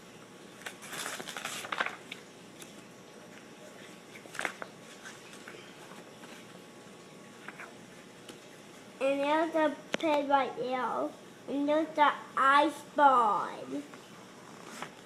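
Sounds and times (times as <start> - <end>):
paper pages rustling: 0.6 - 2.8, 3.4 - 6.6, 14.6 - 15.0.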